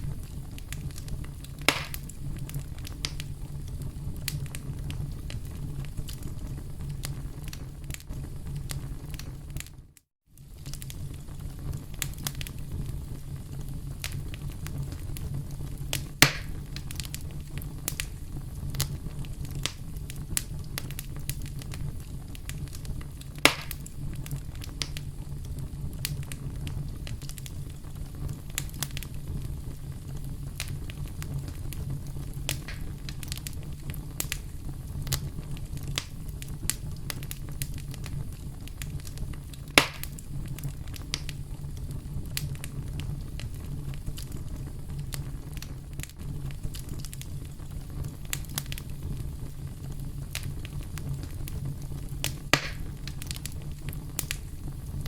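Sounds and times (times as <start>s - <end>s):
campfire crackling: 0.0s - 55.0s
loud fire snaps: 0.0s - 55.0s.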